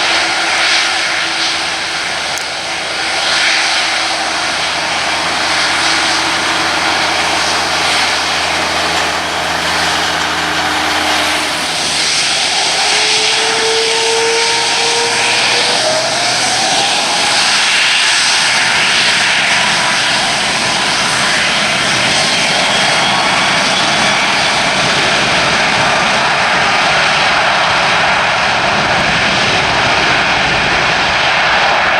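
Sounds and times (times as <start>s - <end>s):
low steady hum: 0.0s - 20.0s
jet engine roar: 0.0s - 31.9s
rising whine: 0.0s - 31.9s.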